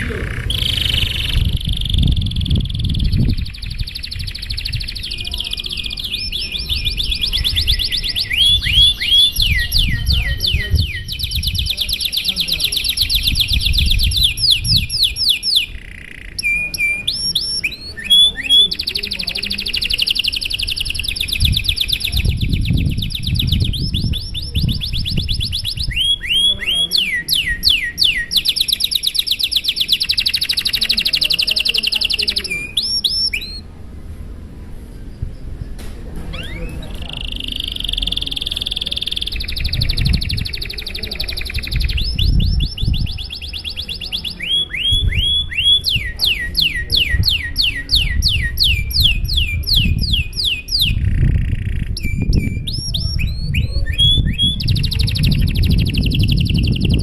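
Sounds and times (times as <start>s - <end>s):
canary singing: 0.0s - 33.7s, 36.3s - 57.0s.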